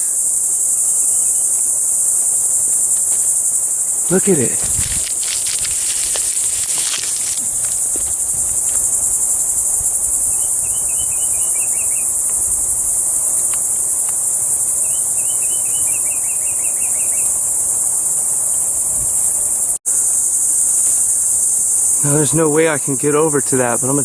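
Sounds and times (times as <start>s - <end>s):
insects buzzing: 0.0s - 24.0s
quick chirps: 4.0s - 17.4s.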